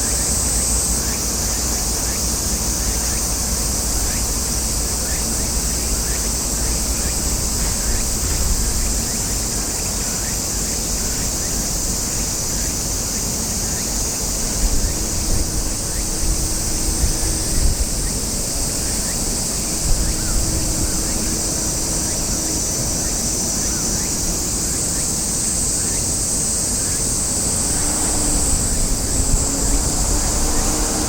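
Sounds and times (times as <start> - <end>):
steady high-pitched hiss: 0.0 - 31.0
wind rumbling on microphone: 2.9 - 9.8, 14.1 - 31.0.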